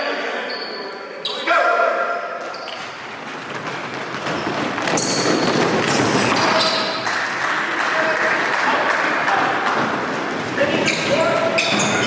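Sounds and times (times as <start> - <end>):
basketball practice noise: 0.0 - 12.0
basketballs bouncing on gym floor: 3.2 - 7.0.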